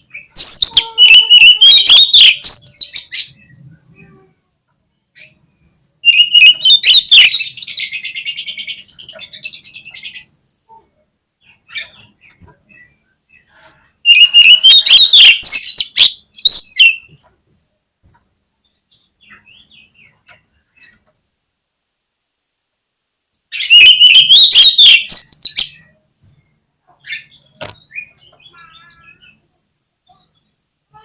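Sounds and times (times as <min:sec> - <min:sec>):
bird singing shrill buzzy song: 0:00.0 - 0:04.2, 0:04.9 - 0:10.3, 0:11.4 - 0:17.2, 0:23.3 - 0:31.0
faint bird chirps: 0:00.0 - 0:17.1, 0:23.4 - 0:31.0.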